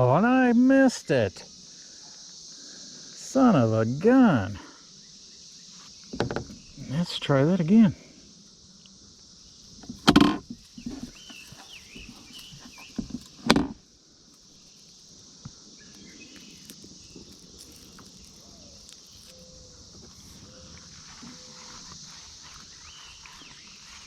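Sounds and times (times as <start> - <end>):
cicadas buzzing chorus: 0.0 - 24.0
close rustling knocks: 6.0 - 6.6, 9.7 - 13.8.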